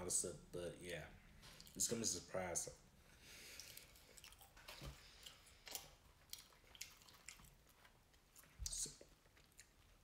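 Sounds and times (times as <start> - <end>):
faint chewing of fries: 1.3 - 2.1, 3.2 - 10.0.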